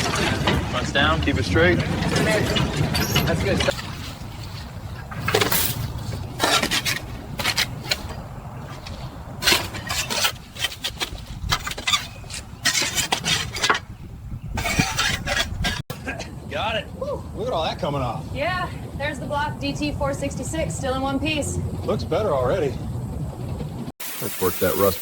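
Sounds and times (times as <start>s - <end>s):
metal clanks and scrapes: 0.0s - 13.9s, 14.6s - 15.9s.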